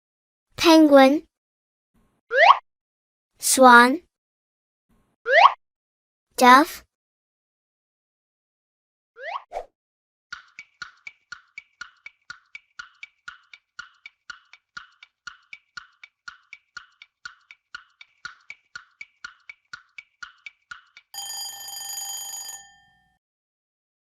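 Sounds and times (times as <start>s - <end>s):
countdown timer ticking: 10.3s - 22.2s
ringing alarm tone: 21.2s - 23.2s.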